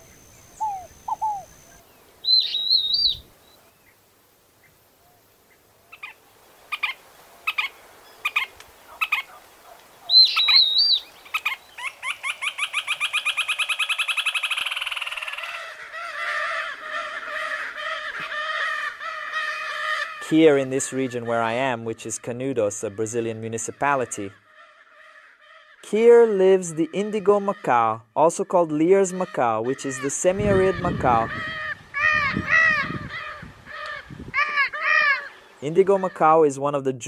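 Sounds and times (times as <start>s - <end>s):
sharp separate bird notes: 0.0s - 3.2s, 10.1s - 15.5s
high warbled bird phrase: 0.0s - 3.3s, 10.0s - 37.0s
long fast bird trill: 0.0s - 3.3s, 10.1s - 17.2s
overlapping bird calls: 0.0s - 4.0s, 4.6s - 28.0s, 28.7s - 36.4s.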